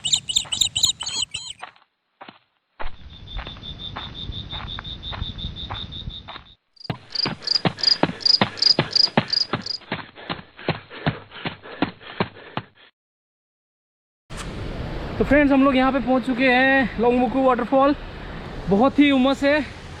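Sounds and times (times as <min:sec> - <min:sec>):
insects shrilling high-pitched tone: 0:00.0 - 0:01.6, 0:03.0 - 0:09.8
pulsing insect call: 0:00.0 - 0:01.6, 0:02.9 - 0:09.8.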